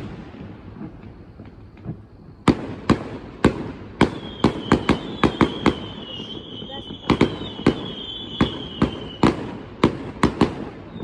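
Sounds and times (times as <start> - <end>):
faint fireworks pops: 0.0 - 11.0
fireworks bangs: 0.0 - 11.0
high firework whistle: 3.4 - 9.6, 10.2 - 11.0.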